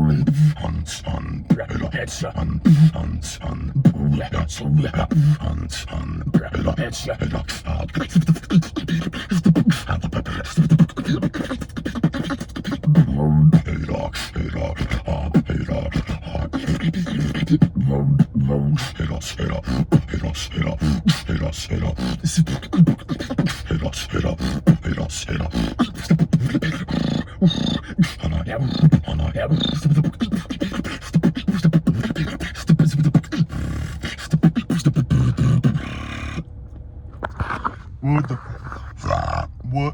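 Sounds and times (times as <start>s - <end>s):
person beatboxing: 0.0s - 36.4s.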